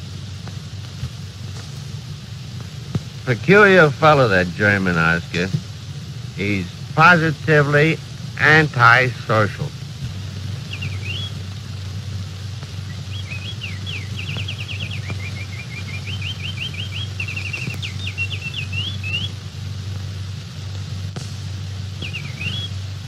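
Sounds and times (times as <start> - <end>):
steady low hum: 0.0 - 23.0
bird chirping and trilling: 10.6 - 11.5, 12.8 - 19.3, 22.0 - 22.8.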